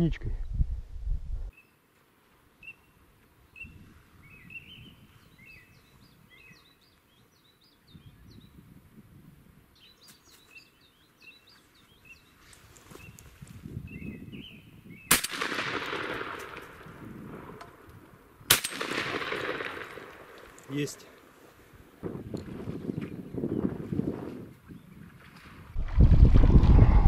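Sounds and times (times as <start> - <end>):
birds chirping and whistling: 2.6 - 8.6, 9.8 - 15.2.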